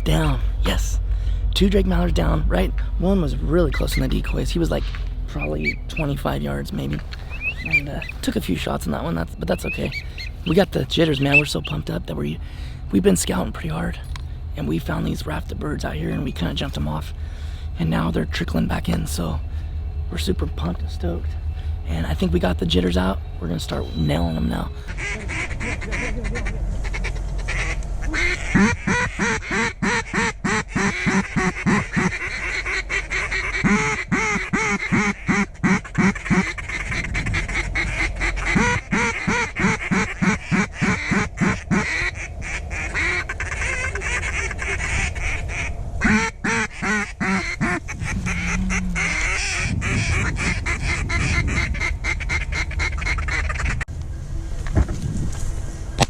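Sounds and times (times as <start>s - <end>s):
duck quacking: 5.3s - 12.7s, 22.2s - 53.8s.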